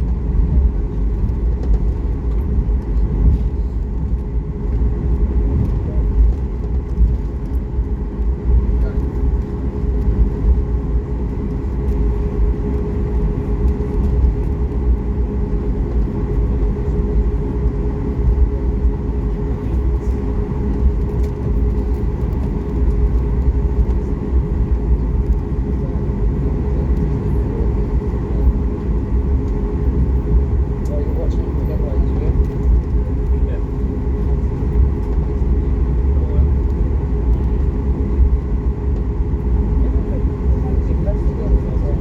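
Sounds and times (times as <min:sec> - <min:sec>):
aircraft cabin low rumble: 0:00.0 - 0:42.0
jet engines idling hum: 0:00.0 - 0:42.0.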